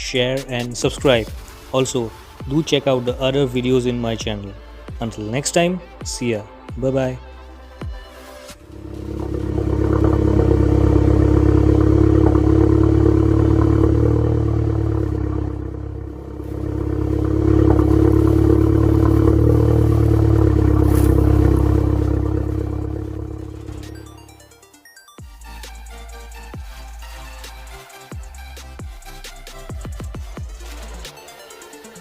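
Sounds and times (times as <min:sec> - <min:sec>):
car engine running: 0:08.5 - 0:24.5.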